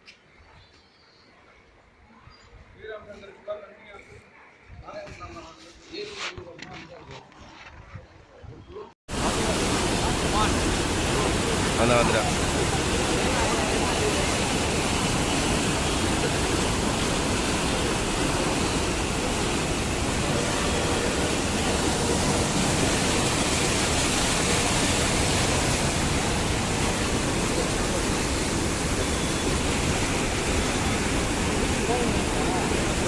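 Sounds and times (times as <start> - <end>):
floodwater rushing: 9.1 - 33.0.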